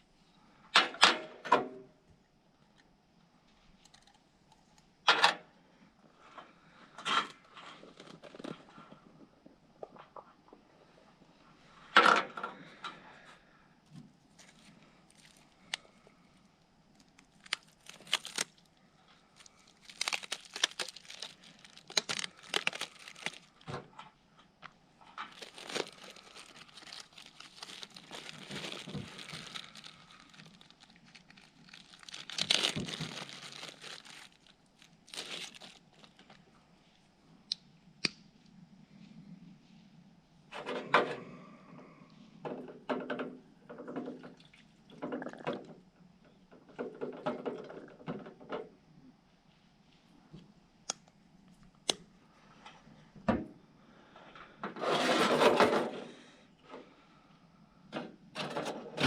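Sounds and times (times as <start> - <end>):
packaging crinkling and tearing: 14.4 - 15.9, 17.0 - 18.7, 19.4 - 23.7, 25.2 - 36.4.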